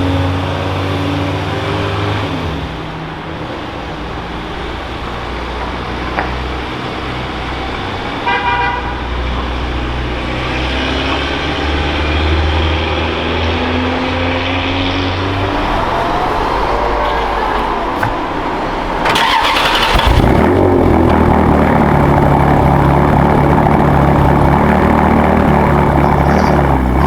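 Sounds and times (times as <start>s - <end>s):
car horn toots: 8.2s - 9.5s, 15.2s - 20.4s
car engine running: 12.7s - 27.0s.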